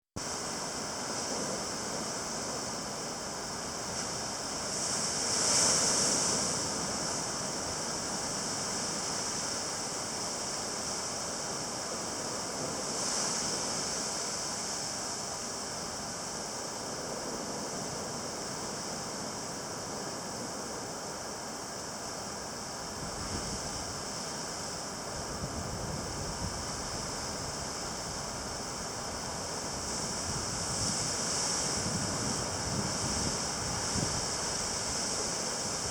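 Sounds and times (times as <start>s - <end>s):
wind rumbling on microphone: 22.8s - 35.9s.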